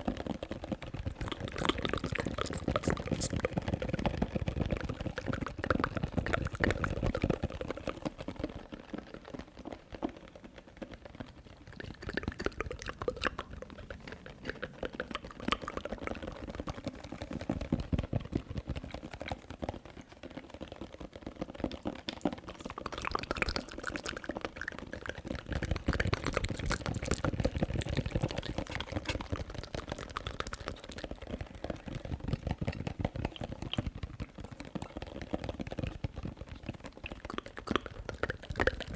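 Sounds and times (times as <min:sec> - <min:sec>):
wet mouth sounds: 0:01.2 - 0:03.6, 0:11.6 - 0:17.4, 0:22.1 - 0:31.6, 0:36.6 - 0:38.9.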